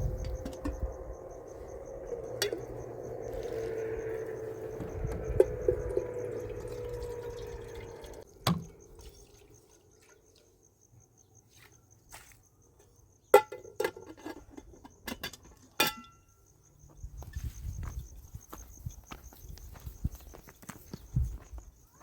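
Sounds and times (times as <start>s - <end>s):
insect trilling: 0.0s - 10.4s.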